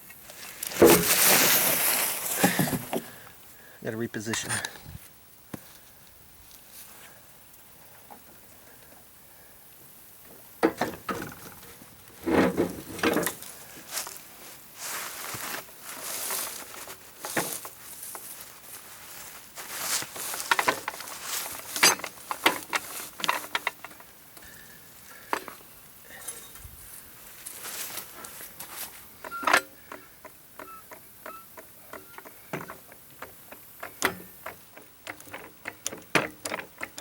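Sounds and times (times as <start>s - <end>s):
metal jack clanking and scraping: 10.7s - 13.5s, 20.2s - 24.1s, 33.5s - 37.0s.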